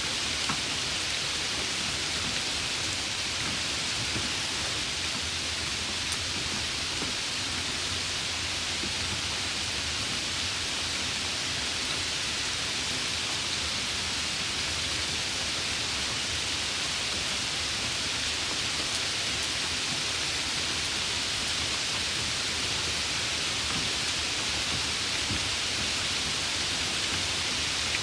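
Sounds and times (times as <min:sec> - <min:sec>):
rain falling: 0:00.0 - 0:28.0.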